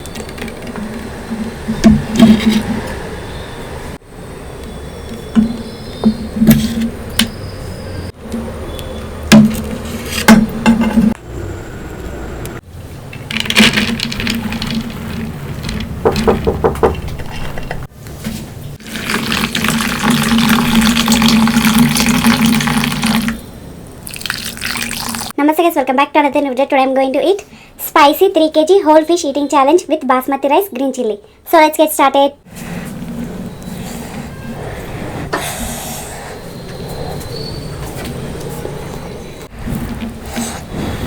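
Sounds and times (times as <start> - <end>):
sharp clicks and knocks: 13.1 - 17.9
liquid pouring: 18.8 - 23.4, 24.0 - 25.3.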